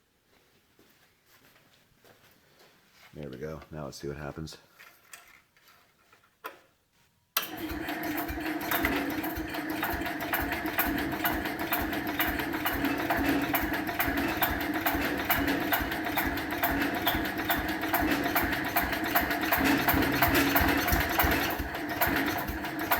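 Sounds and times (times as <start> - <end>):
small engine starting and running: 7.4 - 22.9.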